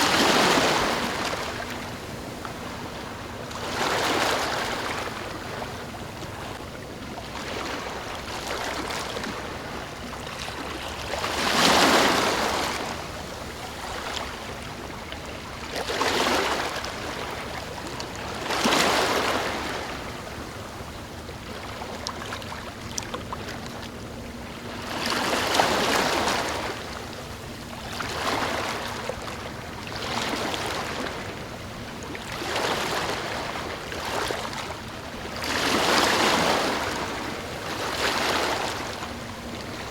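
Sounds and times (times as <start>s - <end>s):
background wash of water: 0.0s - 39.9s.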